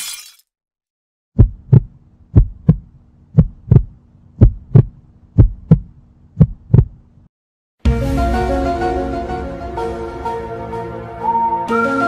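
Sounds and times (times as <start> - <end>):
heartbeat thumps: 1.4 - 7.0.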